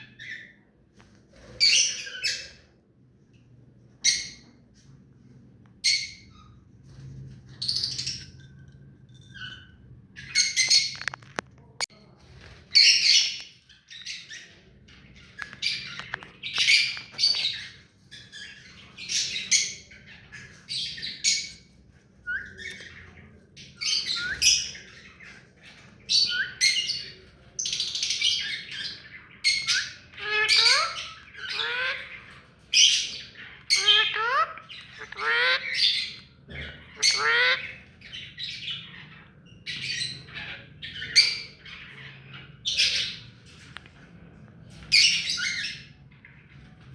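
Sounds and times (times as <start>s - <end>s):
parrot squawking: 29.8s - 38.3s.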